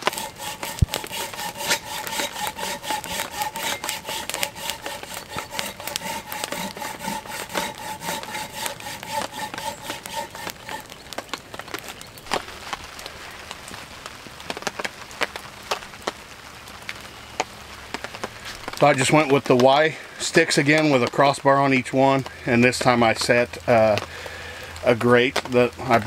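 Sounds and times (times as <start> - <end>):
hand saw cutting wood: 0.0 - 11.0.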